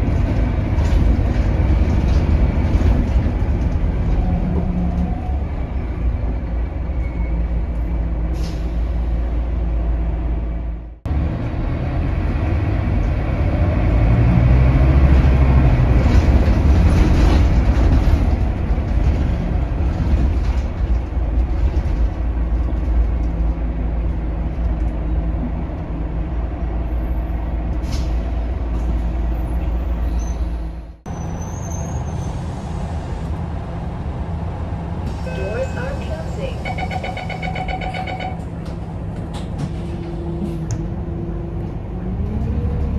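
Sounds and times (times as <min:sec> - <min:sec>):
bus diesel engine pulling: 0:00.0 - 0:42.9
road noise: 0:00.0 - 0:42.9.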